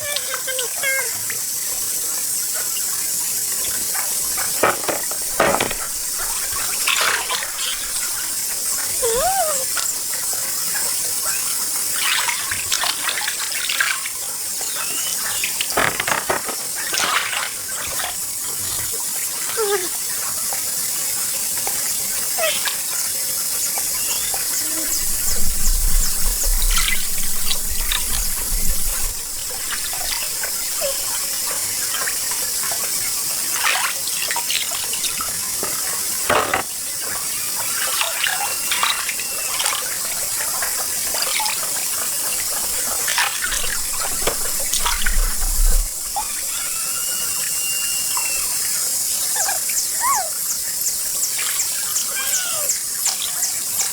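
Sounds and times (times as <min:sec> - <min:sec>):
water splashing and sloshing: 0:03.5 - 0:14.6, 0:15.2 - 0:20.7, 0:22.4 - 0:46.9.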